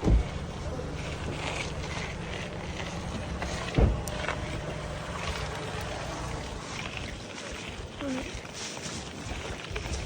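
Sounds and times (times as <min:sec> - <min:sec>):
sharp thump: 0:00.0 - 0:00.4, 0:03.7 - 0:04.2
bicycle tyres rumbling on concrete: 0:00.0 - 0:10.0.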